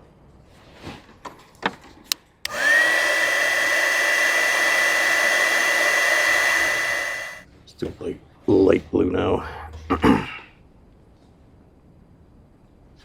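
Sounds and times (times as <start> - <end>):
heat gun fan whining: 2.5 - 7.4.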